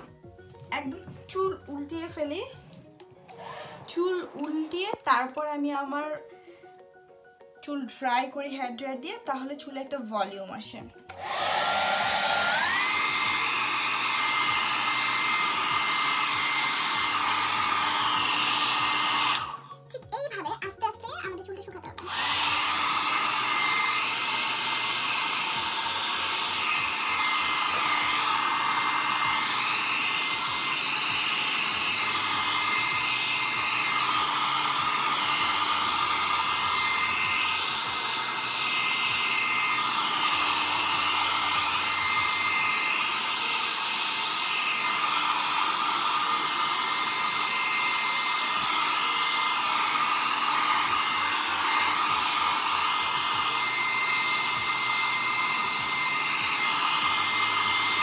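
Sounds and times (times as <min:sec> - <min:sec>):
hair dryer running: 0:00.0 - 0:06.4, 0:10.2 - 0:19.8, 0:22.0 - 0:58.0.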